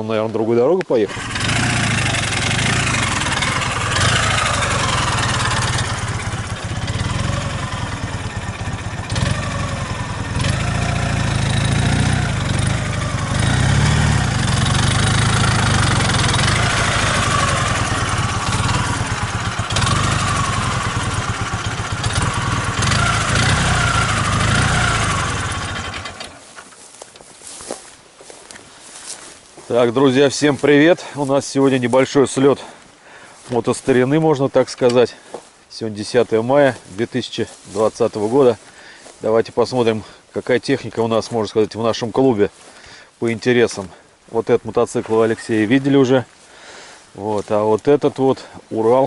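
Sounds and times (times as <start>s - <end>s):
motorcycle engine revving: 1.0s - 26.6s.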